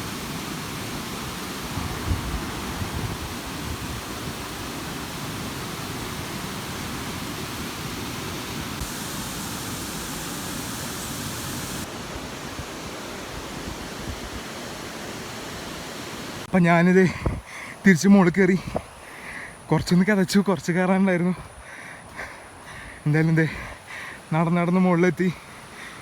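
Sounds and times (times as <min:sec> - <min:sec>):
waterfall rushing over rock: 0:00.0 - 0:16.5.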